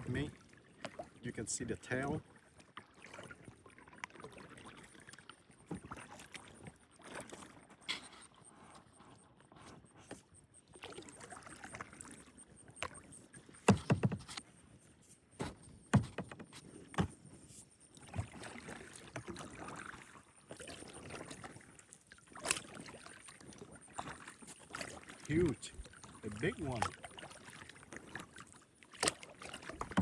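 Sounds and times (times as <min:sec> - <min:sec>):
paddle strokes swishing and dripping: 0:00.0 - 0:30.0
sharp knocks: 0:13.7 - 0:14.3, 0:16.0 - 0:17.1.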